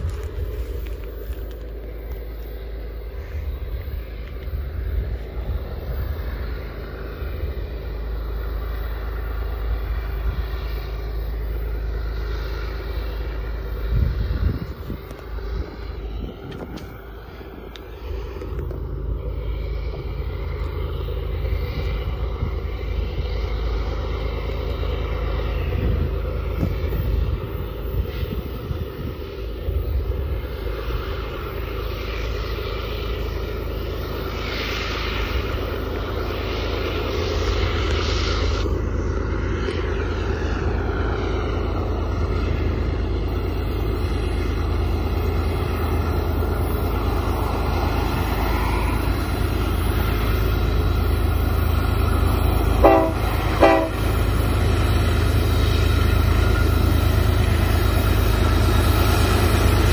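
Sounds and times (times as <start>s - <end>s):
freight train rumbling: 0.0s - 59.9s
train horn blasts: 52.6s - 54.3s.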